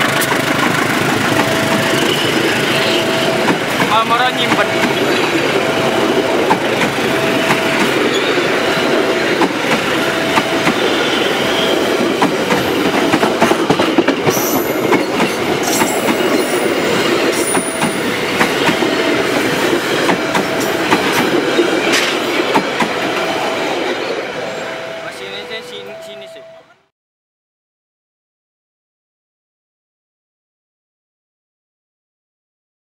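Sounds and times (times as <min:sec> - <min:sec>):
train coaches rumbling past: 0:00.0 - 0:26.8
wheels clicking over rail joints: 0:12.0 - 0:23.2.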